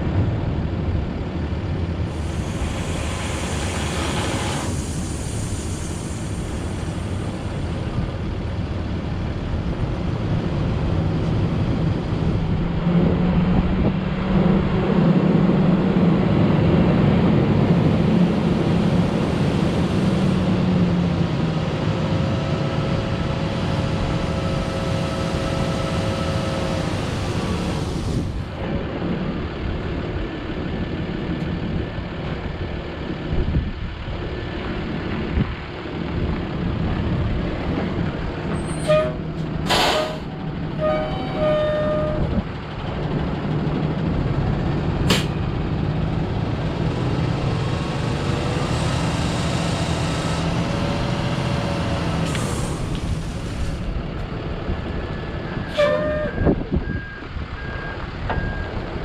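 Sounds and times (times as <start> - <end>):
diesel truck engine running: 0.0 - 59.0
short horn blasts: 40.8 - 42.4, 55.7 - 56.6.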